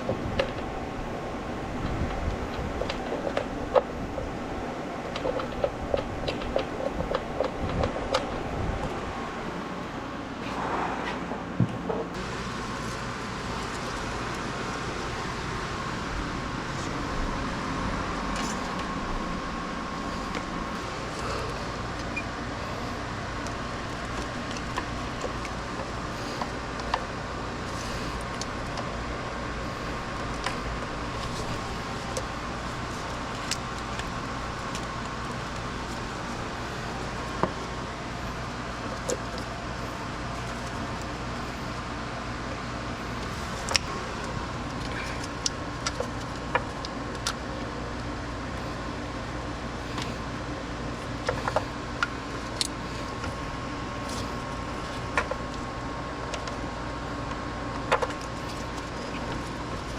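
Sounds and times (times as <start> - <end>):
mechanical hum with whine: 0.0 - 59.9
hand tools clicking and tapping: 5.0 - 8.4.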